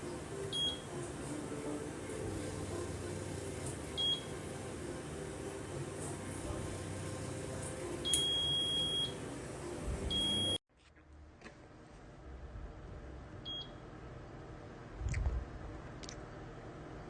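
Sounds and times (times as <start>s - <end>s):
air fryer beeps: 0.0s - 1.1s, 3.9s - 4.6s, 8.0s - 10.6s, 13.4s - 13.8s.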